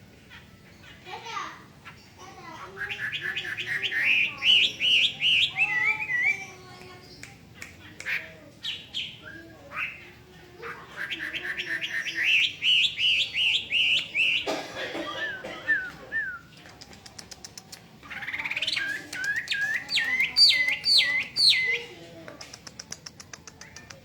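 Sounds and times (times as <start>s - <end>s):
songbird whistling phrases: 2.7s - 10.1s, 10.9s - 14.5s, 15.2s - 16.6s, 18.1s - 21.9s.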